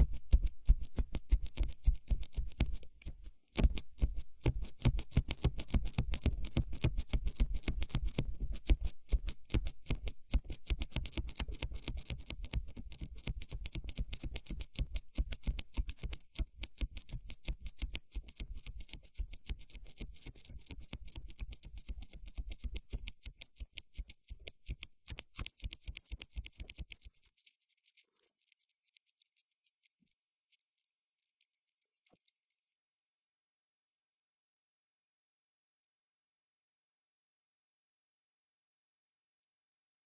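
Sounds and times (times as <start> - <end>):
fast crackle of tiny taps: 0.0 - 27.2.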